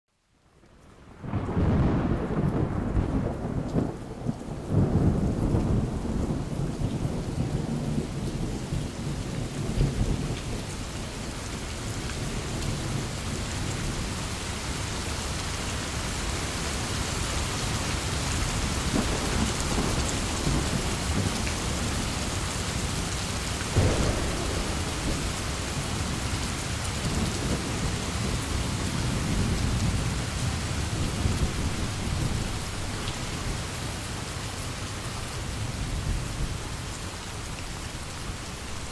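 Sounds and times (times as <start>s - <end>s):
heavy rain: 0.7s - 38.9s
thunder rumbling: 1.3s - 6.5s, 18.8s - 32.8s
sharp thunderclap: 23.7s - 30.1s.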